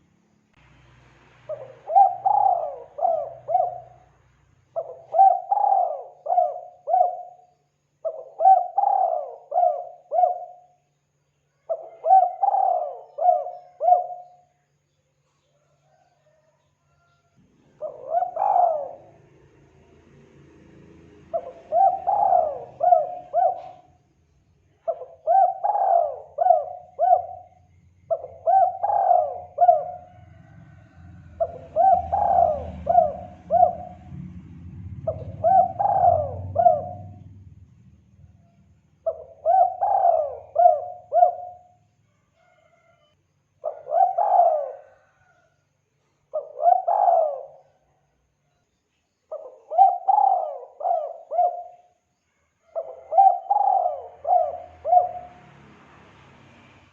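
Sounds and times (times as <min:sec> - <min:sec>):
dove cooing: 0:01.5 - 0:04.2, 0:04.8 - 0:10.8, 0:11.6 - 0:14.6, 0:15.6 - 0:19.4, 0:21.2 - 0:24.0, 0:24.7 - 0:34.3, 0:35.0 - 0:37.4, 0:39.0 - 0:41.8, 0:43.6 - 0:45.5, 0:46.3 - 0:48.0, 0:49.3 - 0:52.0, 0:52.6 - 0:55.5
faint low rumble: 0:30.0 - 0:39.4.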